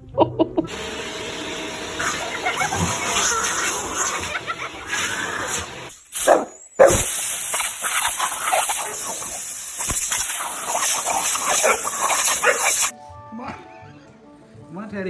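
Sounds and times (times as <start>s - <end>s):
dog barking: 6.2s - 7.1s, 11.1s - 12.9s.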